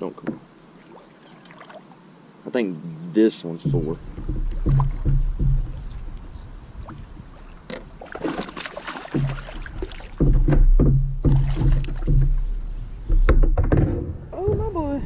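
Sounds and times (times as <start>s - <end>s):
knocks and rumbles on kayak: 0.2s - 0.5s, 3.6s - 14.9s
fish splashing in water: 4.0s - 10.5s, 11.2s - 12.6s.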